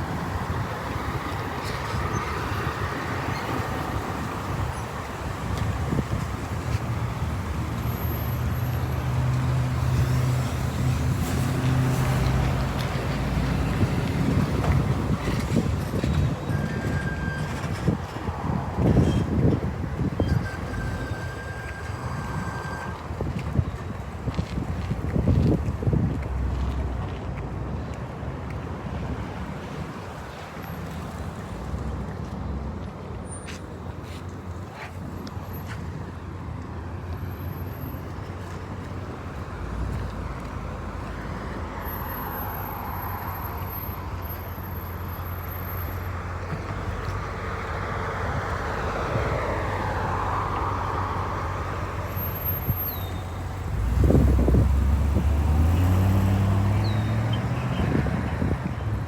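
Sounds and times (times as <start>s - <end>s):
traffic noise: 0.0s - 59.0s
wind buffeting microphone: 11.1s - 21.2s, 23.0s - 28.2s, 46.6s - 59.0s
vehicle engine humming: 31.2s - 59.0s.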